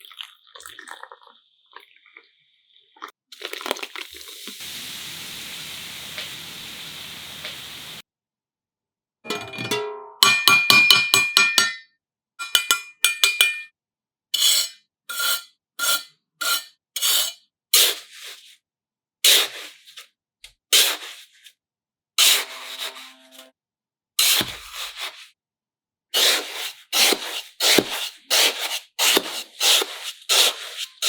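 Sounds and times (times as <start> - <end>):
scraping strokes: 22.2 - 23.5.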